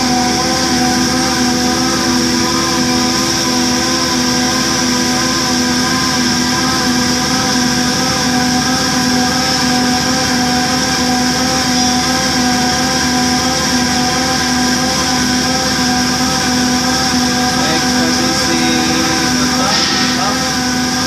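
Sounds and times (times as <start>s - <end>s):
air motor hissing: 15.2s - 21.0s.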